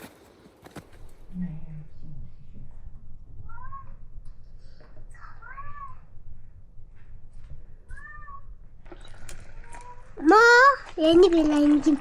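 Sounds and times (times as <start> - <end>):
cat meowing: 3.4 - 4.0, 5.2 - 6.1, 7.9 - 8.6.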